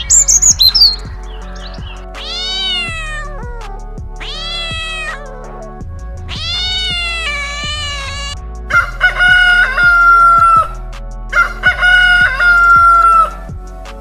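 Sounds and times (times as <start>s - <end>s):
cat meowing: 2.2s - 3.6s, 4.2s - 5.4s, 6.3s - 8.4s.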